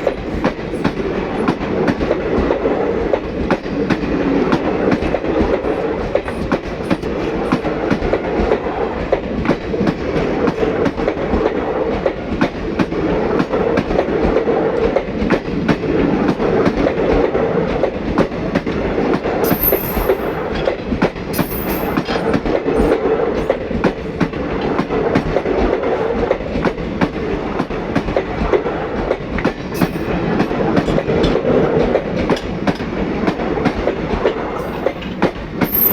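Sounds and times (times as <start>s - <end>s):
train rumble: 0.0s - 35.9s
brief high squeaks: 19.5s - 20.3s, 21.4s - 22.0s, 35.7s - 35.9s.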